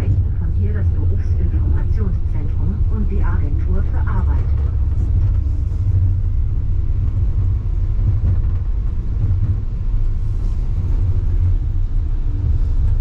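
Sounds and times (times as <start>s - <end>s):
suspension railway car rumble: 0.0s - 13.0s.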